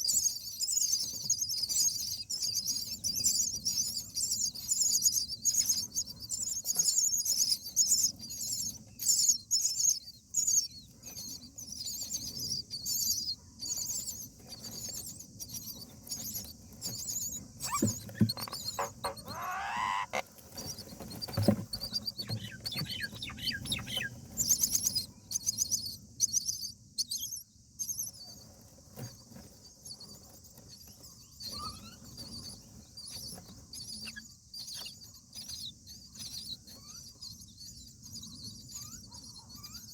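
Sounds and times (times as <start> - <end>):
nestlings squeaky begging calls: 0.0 - 28.4, 31.0 - 39.9
knocks in nest: 17.6 - 20.2.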